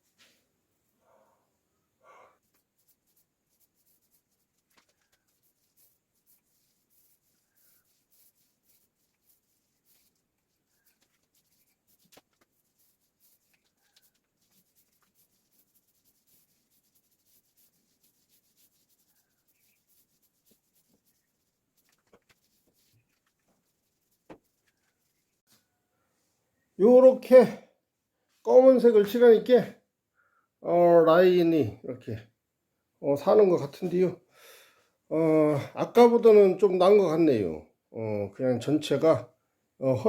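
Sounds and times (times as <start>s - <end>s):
paintbrush rubbing on metal: 2.4s - 25.6s.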